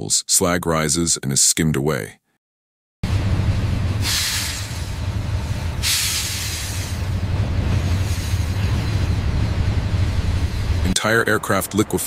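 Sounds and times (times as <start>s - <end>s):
freight train rumbling: 3.0s - 12.0s
long hisses: 4.0s - 7.2s, 7.8s - 9.1s.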